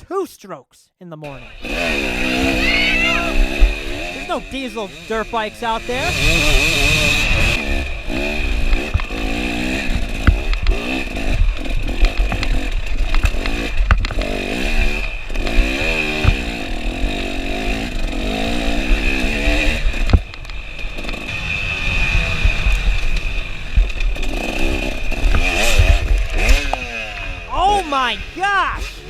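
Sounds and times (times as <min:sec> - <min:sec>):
dirt bike engine revving: 0:01.4 - 0:20.1, 0:24.2 - 0:27.4.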